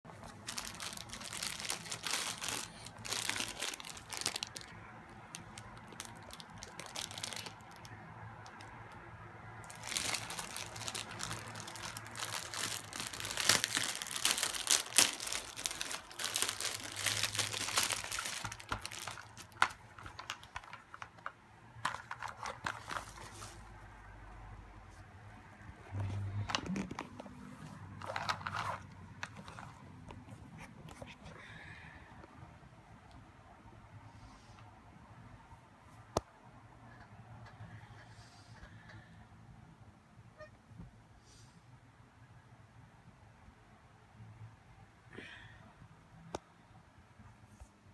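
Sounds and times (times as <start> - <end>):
packaging crinkling and tearing: 0.1 - 8.8, 9.6 - 23.7, 25.9 - 31.2.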